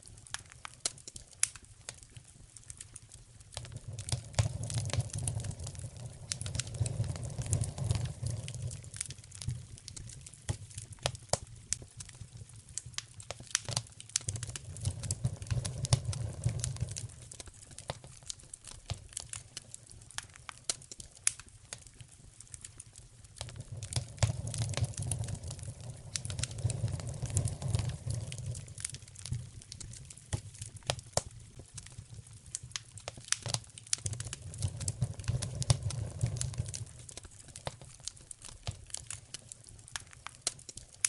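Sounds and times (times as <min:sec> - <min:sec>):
low rumble of flames: 0:00.0 - 0:41.0
wood fire crackling and popping: 0:00.0 - 0:41.0.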